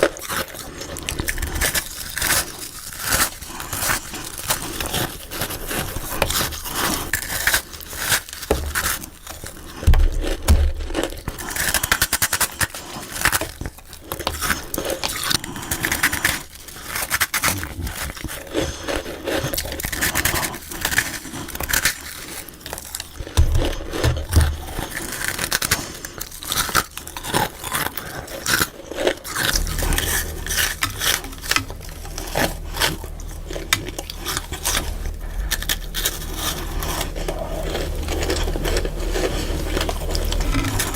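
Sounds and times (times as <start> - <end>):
crunchy chewing of frost: 0.0 - 40.9
scraping: 29.4 - 40.9.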